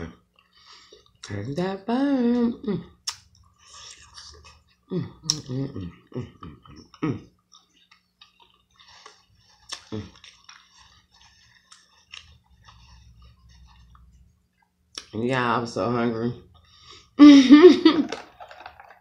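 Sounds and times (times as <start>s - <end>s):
person chewing with mouth clicks: 0.2s - 1.4s, 2.4s - 15.2s.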